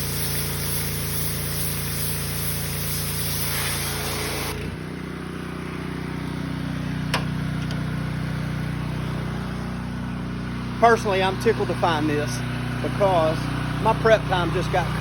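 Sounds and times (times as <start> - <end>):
pressure washer spray hiss: 0.0 - 4.6
pressure washer engine running: 0.0 - 15.0.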